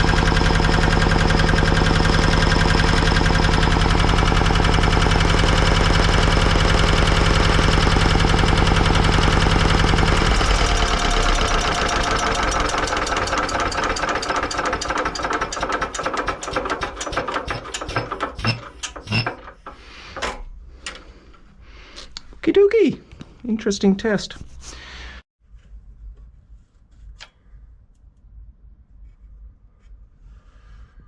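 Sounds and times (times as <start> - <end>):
generator knocking as it coasts down: 0.0 - 20.3
diesel generator running: 0.0 - 21.9.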